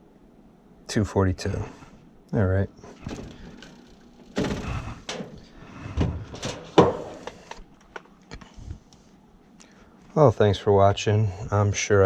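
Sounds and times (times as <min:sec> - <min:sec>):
door or panel knocks and clicks: 0:06.4 - 0:07.3.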